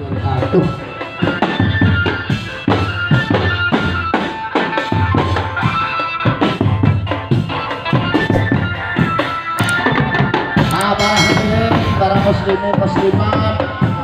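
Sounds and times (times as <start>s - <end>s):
held melody line: 11.0s - 12.4s.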